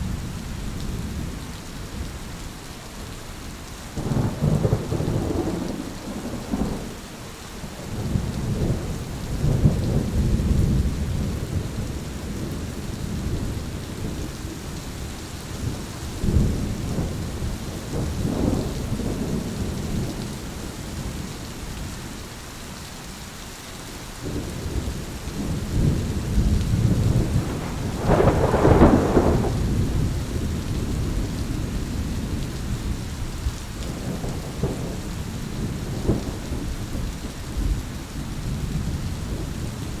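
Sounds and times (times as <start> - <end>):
steady rain: 0.0 - 40.0
rolling thunder: 4.0 - 14.3, 15.6 - 21.1, 24.2 - 40.0
sharp thunderclap: 25.4 - 31.4.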